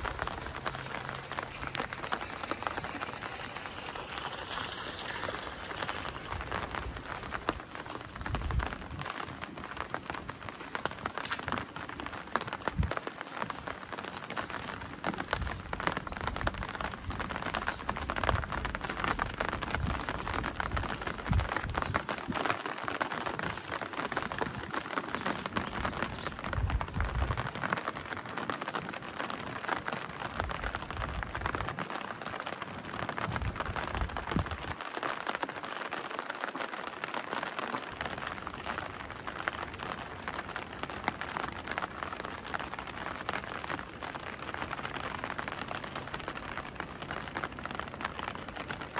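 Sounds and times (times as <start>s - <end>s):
low rumbles: 0.0s - 10.0s
rain pattering: 0.0s - 48.9s.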